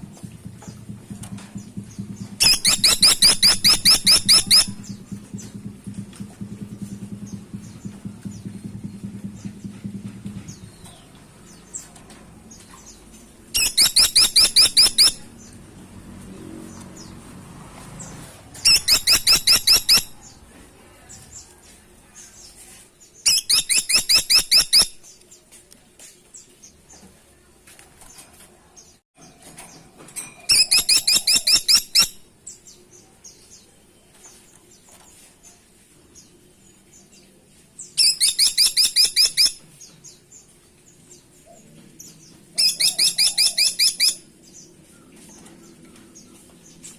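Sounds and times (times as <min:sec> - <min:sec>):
woodpecker rattling call: 0:02.3 - 0:05.0, 0:13.5 - 0:15.4, 0:18.6 - 0:20.2, 0:23.3 - 0:25.0, 0:30.5 - 0:32.2, 0:38.0 - 0:39.6, 0:42.6 - 0:44.2.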